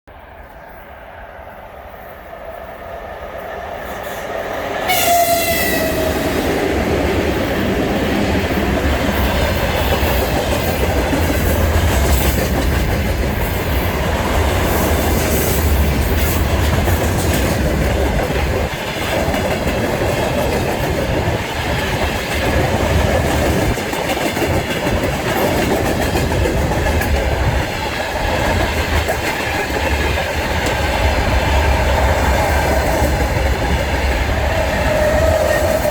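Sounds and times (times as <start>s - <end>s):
heavy train rumble: 0.1s - 35.9s
train wheels clattering: 3.8s - 35.9s
train horn blast: 4.8s - 6.5s, 34.3s - 35.9s.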